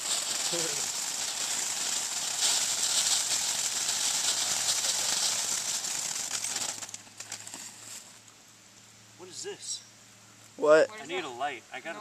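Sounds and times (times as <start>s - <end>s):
ground firework hissing: 0.0s - 8.2s
faint crackling: 0.0s - 8.4s.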